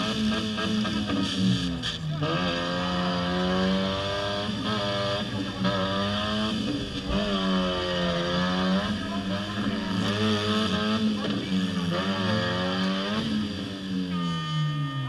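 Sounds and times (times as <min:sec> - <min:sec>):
car engines revving: 0:00.0 - 0:15.0
steady low engine hum: 0:04.3 - 0:13.9.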